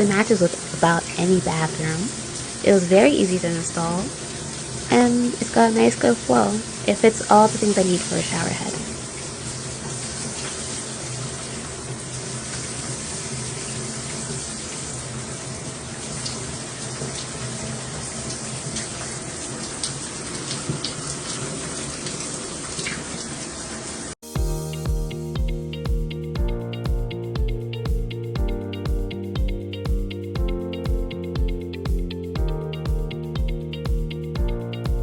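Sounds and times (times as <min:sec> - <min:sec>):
shower water spraying: 0:00.0 - 0:25.3
music with beat and plucked guitar: 0:24.3 - 0:35.0.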